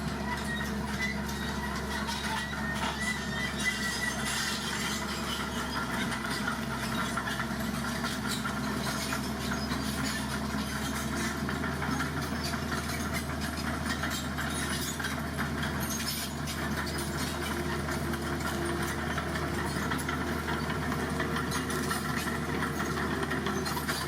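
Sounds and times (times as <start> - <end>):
heavy diesel engine running: 0.0 - 24.0.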